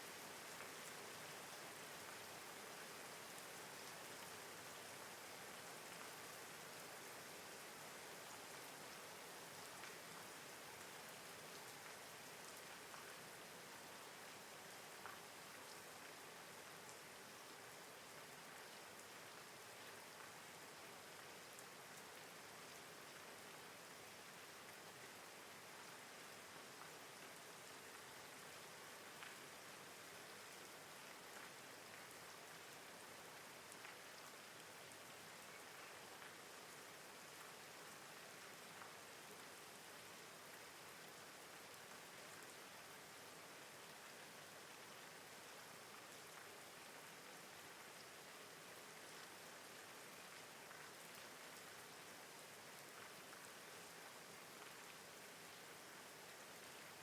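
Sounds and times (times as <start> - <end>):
faint rainfall hiss: 0.0 - 57.0.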